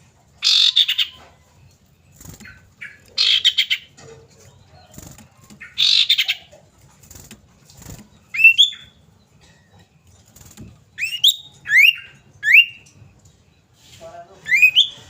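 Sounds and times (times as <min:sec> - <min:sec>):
bird whistling upward notes: 0:10.9 - 0:12.8.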